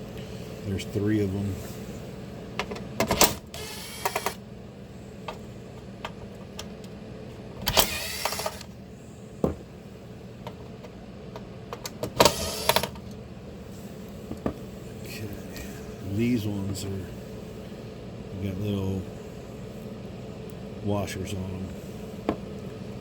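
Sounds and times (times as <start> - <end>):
power screwdriver whirring: 3.1 - 4.4, 7.7 - 8.7, 12.2 - 13.0.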